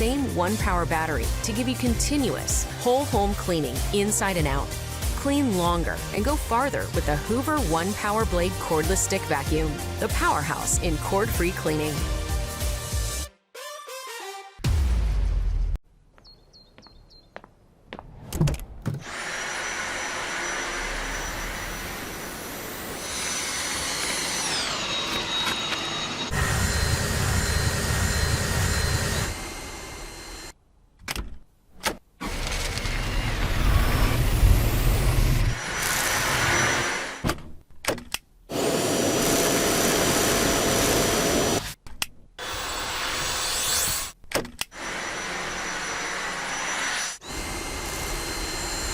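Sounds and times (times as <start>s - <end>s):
stick vacuum running: 19.0s - 30.4s, 38.5s - 41.6s.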